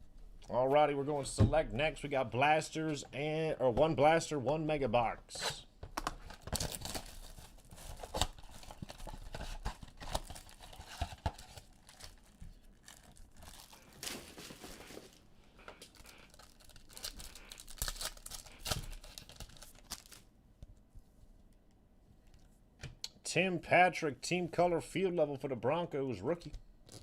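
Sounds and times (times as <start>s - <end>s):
plastic wrapping tearing: 6.2s - 15.0s, 15.8s - 20.2s.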